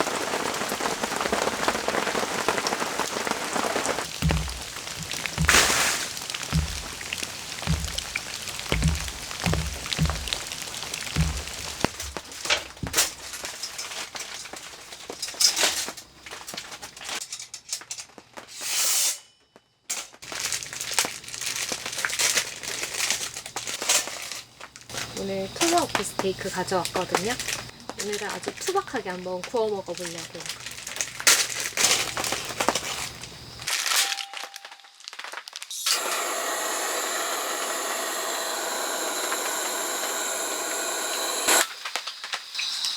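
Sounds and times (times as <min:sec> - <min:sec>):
rain falling: 0:00.0 - 0:13.5
low handling thumps: 0:04.1 - 0:13.0.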